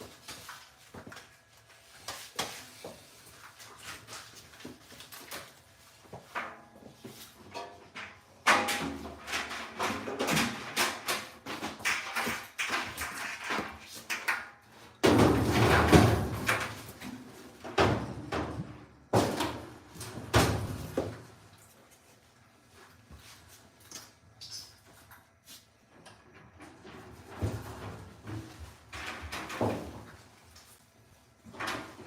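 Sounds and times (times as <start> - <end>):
tools and metal parts clattering: 6.3 - 22.0.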